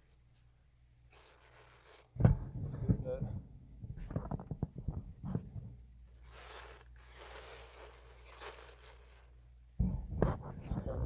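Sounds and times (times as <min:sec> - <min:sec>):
tape tearing off roll: 0:01.1 - 0:02.3, 0:06.1 - 0:09.4.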